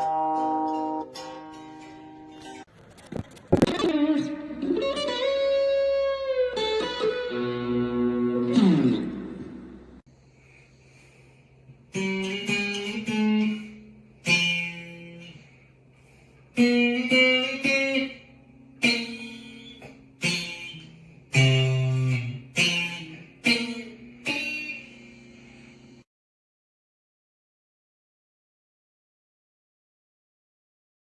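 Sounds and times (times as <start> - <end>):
electric guitar notes and chords: 0.0 - 10.0, 11.9 - 15.4, 16.6 - 25.8.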